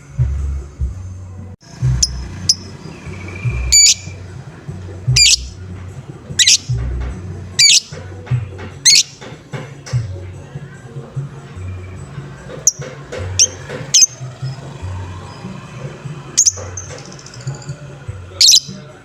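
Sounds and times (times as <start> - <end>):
low music beat: 0.1 - 14.2
lovebird calls: 1.7 - 19.0.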